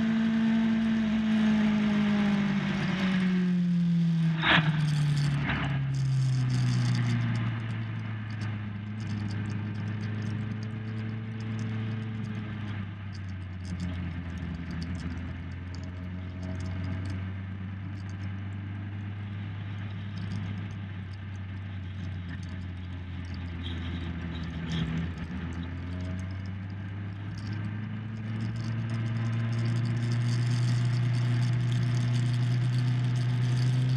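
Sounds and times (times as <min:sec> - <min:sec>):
motorcycle engine: 0:00.0 - 0:33.9
wind noise: 0:04.2 - 0:09.2.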